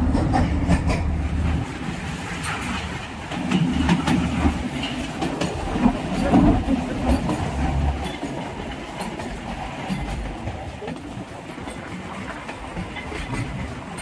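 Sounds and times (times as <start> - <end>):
rail car rumbling along track: 0.0 - 14.0
wheels clicking on rail joints: 0.0 - 14.0.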